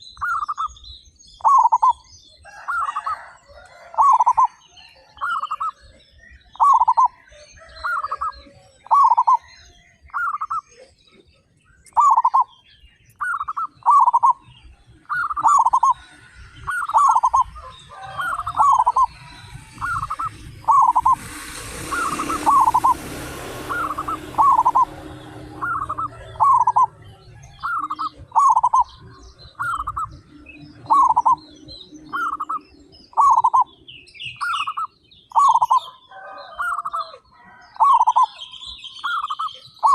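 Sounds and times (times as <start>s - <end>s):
small birds chirping: 0.0s - 39.9s
doves cooing: 13.2s - 33.7s
rushing noise: 15.5s - 32.5s.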